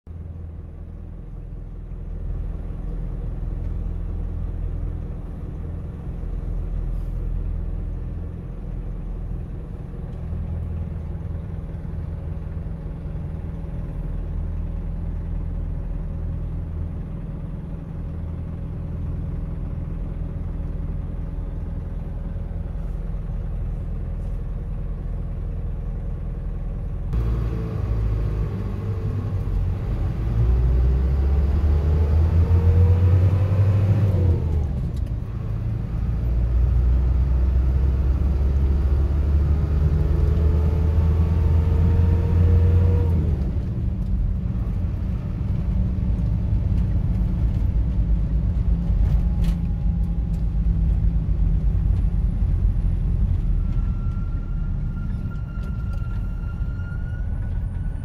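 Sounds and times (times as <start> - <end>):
car engine idling: 0.1 - 31.0.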